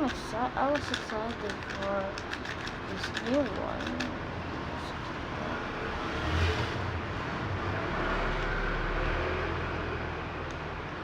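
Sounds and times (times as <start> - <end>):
low traffic rumble: 0.0 - 11.0
vehicle passing: 3.9 - 10.4.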